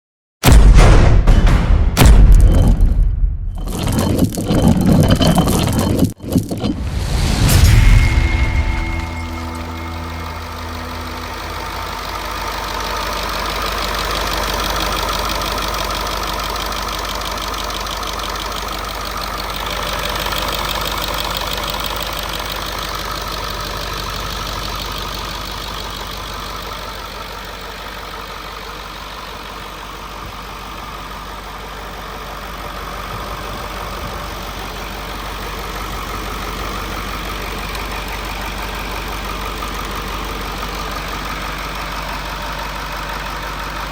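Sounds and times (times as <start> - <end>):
diesel engine idling: 9.4 - 43.9.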